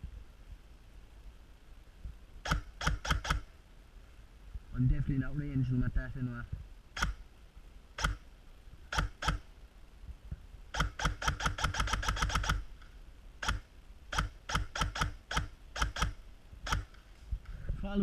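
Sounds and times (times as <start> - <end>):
airsoft rifle shots: 2.4 - 3.5, 8.0 - 8.2, 8.9 - 9.5, 10.7 - 12.7, 13.4 - 17.0.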